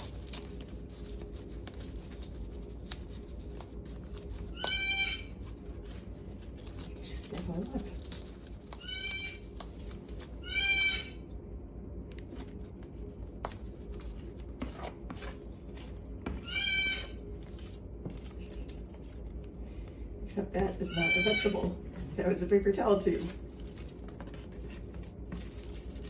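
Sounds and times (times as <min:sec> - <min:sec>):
beak shredding cardboard tube: 0:00.0 - 0:11.2
parrot calls: 0:04.5 - 0:05.4, 0:08.7 - 0:09.4, 0:10.3 - 0:11.3, 0:16.3 - 0:17.2, 0:20.8 - 0:21.7.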